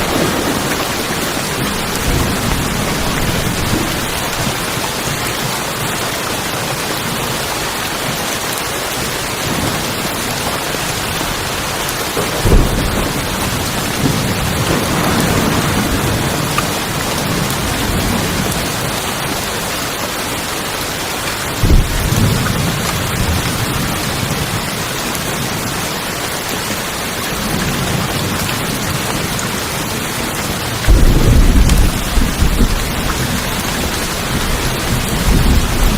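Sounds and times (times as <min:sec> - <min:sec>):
thunder rumbling: 0:00.0 - 0:04.9, 0:09.4 - 0:19.4, 0:21.5 - 0:25.8, 0:27.4 - 0:35.9
heavy rain on tin roofs: 0:00.0 - 0:35.9.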